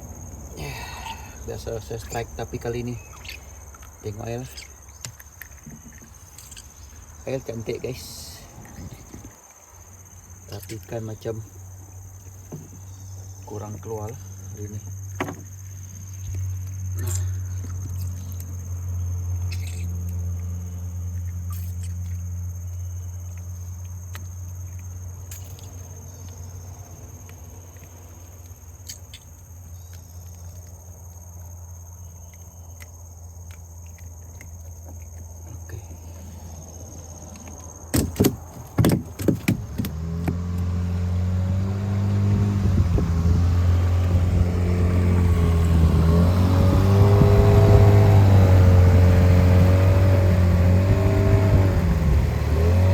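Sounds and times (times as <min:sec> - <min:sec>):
sharp knocks: 0:37.9 - 0:40.4
boat engine running: 0:39.0 - 0:52.9.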